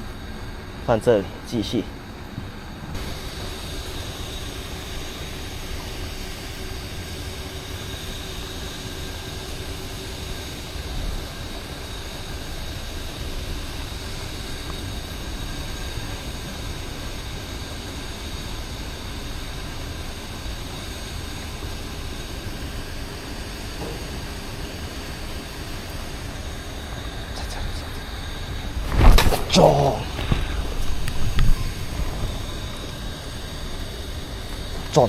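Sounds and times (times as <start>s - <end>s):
steady rushing noise: 23.8s - 35.0s.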